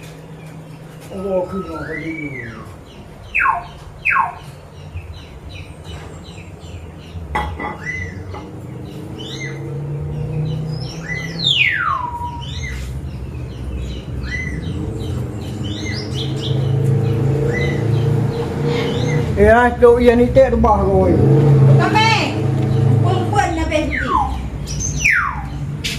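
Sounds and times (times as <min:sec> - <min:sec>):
birds chirping: 0:00.0 - 0:25.9
low motor hum: 0:00.0 - 0:25.9
descending whistles: 0:01.2 - 0:04.5, 0:10.8 - 0:12.9, 0:23.3 - 0:25.6.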